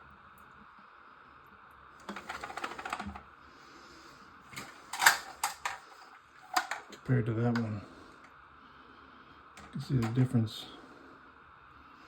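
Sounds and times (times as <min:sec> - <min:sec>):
plastic parts clicking and rattling: 0:02.0 - 0:03.2, 0:04.5 - 0:07.7.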